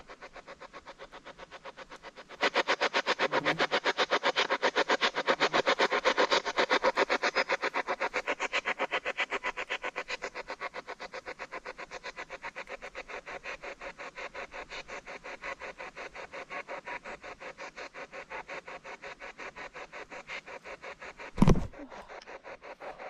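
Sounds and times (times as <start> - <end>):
spirit box sweeping static: 21.4 - 22.2.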